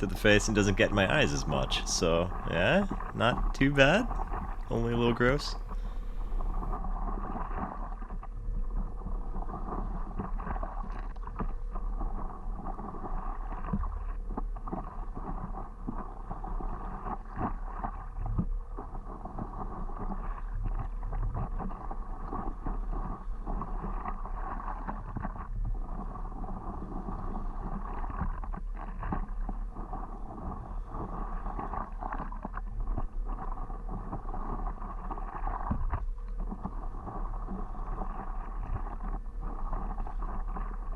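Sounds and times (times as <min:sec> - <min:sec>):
water lapping: 0:00.0 - 0:06.8
paddle strokes in water: 0:00.0 - 0:40.9
wind rumble on microphone: 0:00.0 - 0:40.9.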